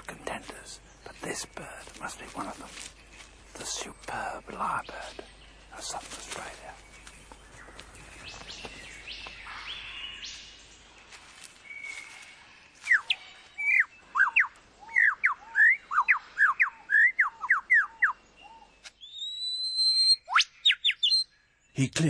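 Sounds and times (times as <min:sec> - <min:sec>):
forest bird calls: 0:00.0 - 0:22.0
lyrebird whistled notes: 0:19.0 - 0:21.2.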